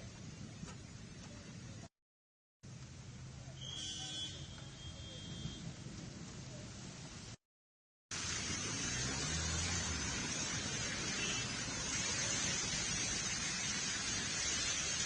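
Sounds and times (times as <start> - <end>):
heavy rain: 8.1 - 15.0.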